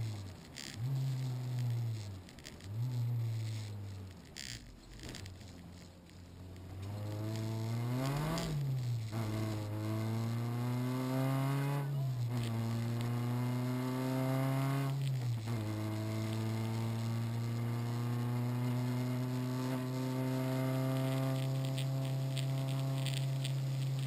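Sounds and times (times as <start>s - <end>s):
car engine accelerating hard: 6.6s - 24.0s.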